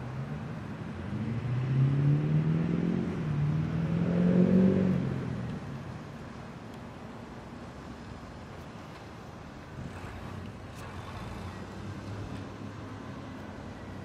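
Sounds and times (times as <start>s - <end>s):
car engine accelerating: 0.9s - 5.6s.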